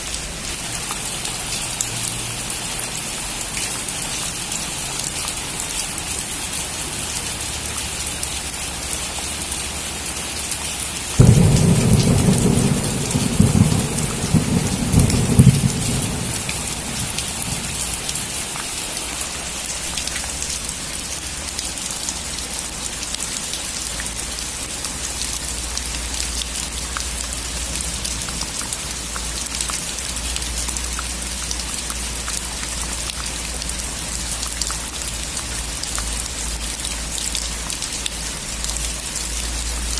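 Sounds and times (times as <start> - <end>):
heavy rain hissing: 9.5 - 21.5
thunder clap and rumble: 11.2 - 18.6.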